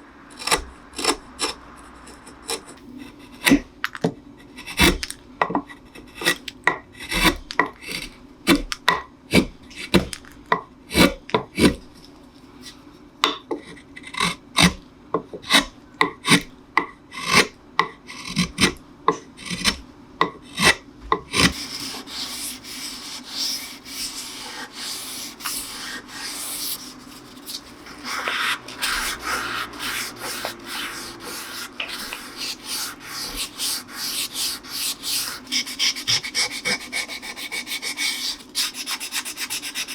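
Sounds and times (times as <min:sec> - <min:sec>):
hand tool scraping wood: 0:04.5 - 0:08.7, 0:09.3 - 0:10.2, 0:19.4 - 0:39.9
sandpaper rubbing wood: 0:21.4 - 0:39.9.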